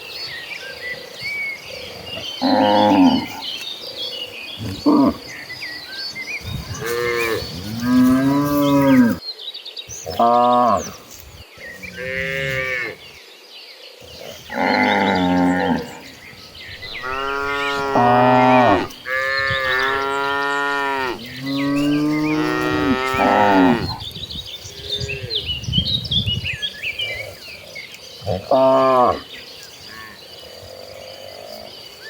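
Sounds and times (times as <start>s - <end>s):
faint insects or birds chirping: 0.0s - 32.0s
cattle mooing: 2.4s - 3.4s, 14.4s - 16.1s, 16.8s - 24.0s.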